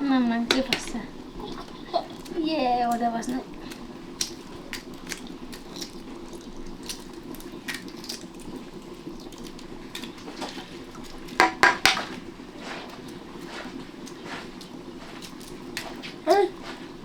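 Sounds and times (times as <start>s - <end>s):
plates and utensils clinking: 0.4s - 3.0s, 11.4s - 12.8s.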